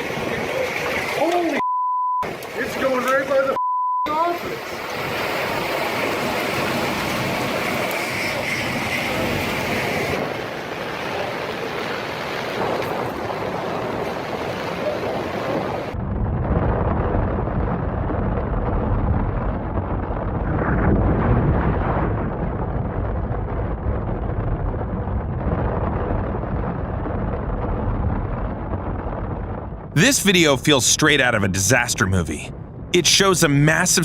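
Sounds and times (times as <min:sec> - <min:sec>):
wind buffeting microphone: 0:00.0 - 0:01.3, 0:04.4 - 0:29.9
storm rushing roar: 0:00.0 - 0:01.6, 0:02.2 - 0:34.0.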